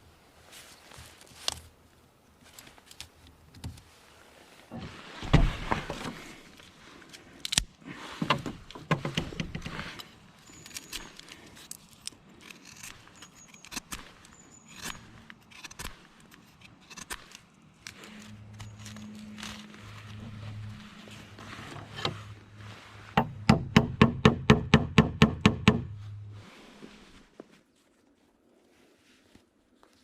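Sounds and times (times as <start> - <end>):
small objects clinking and rustling: 10.3 - 16.6, 18.0 - 20.7.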